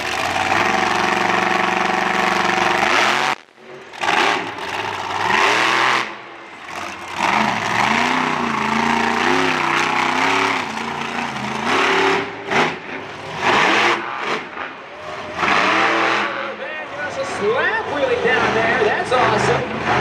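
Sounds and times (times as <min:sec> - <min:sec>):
monster truck engine revving: 0:00.0 - 0:20.0.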